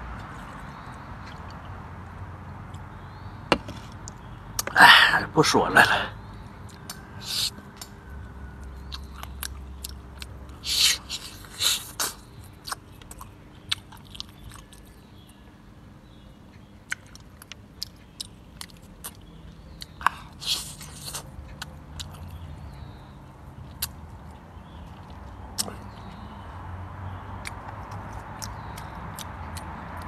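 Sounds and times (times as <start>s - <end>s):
person chewing food: 0.2s - 1.7s, 6.6s - 15.4s, 16.9s - 22.6s, 23.6s - 26.4s, 27.4s - 30.0s
crunchy bites: 3.5s - 4.8s, 16.9s - 22.4s, 23.6s - 26.2s.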